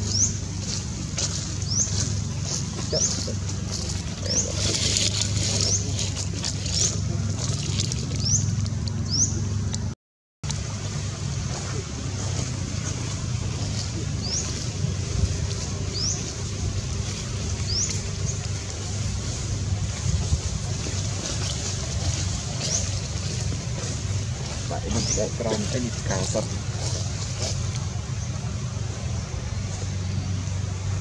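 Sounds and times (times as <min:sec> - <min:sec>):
bird chirping: 0:00.0 - 0:03.4, 0:14.1 - 0:14.7, 0:15.5 - 0:16.5, 0:17.1 - 0:18.5
low steady rumble: 0:00.0 - 0:31.0.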